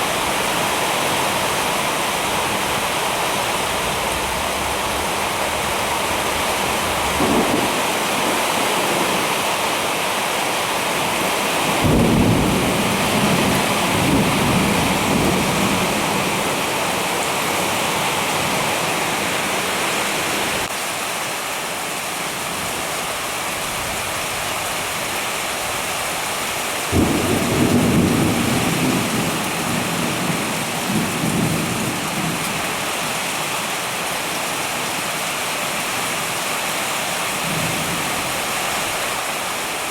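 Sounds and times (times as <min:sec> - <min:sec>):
heavy rain falling: 0:00.0 - 0:39.9
thunder claps and rumbling: 0:06.8 - 0:09.2, 0:11.6 - 0:16.3, 0:26.9 - 0:32.7.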